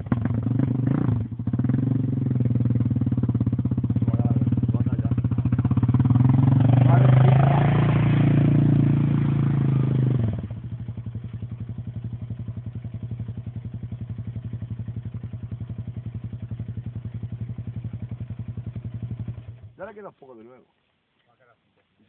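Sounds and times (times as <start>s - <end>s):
engine idling: 2.4s - 7.6s, 9.2s - 20.0s.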